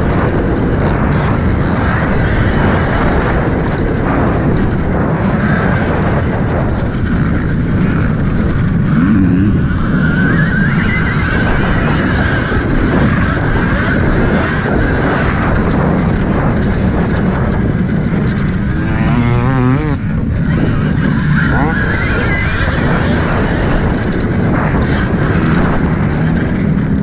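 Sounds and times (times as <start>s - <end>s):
wind buffeting: 0.0s - 27.0s
electric motor whine: 18.4s - 23.4s.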